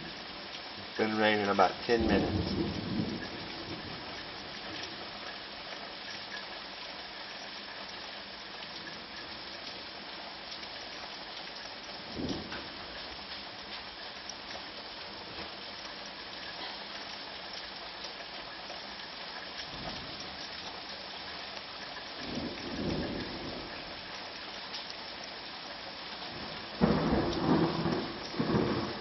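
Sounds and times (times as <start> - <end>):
hard rain falling: 0.0 - 29.0
thunder rumbling: 1.6 - 5.0, 22.2 - 24.0, 26.3 - 29.0.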